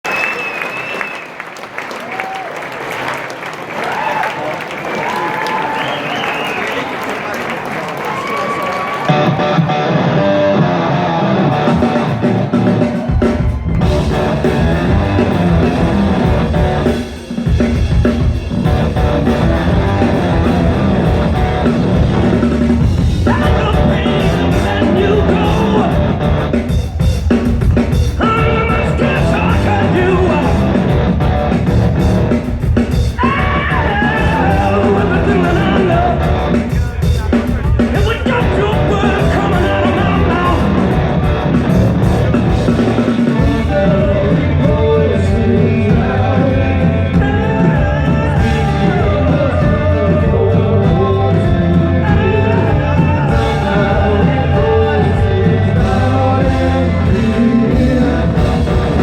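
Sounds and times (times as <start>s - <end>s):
electric guitars: 8.2s - 59.0s
drum kit: 9.0s - 59.0s
lead vocals singing: 10.6s - 31.6s, 32.9s - 59.0s.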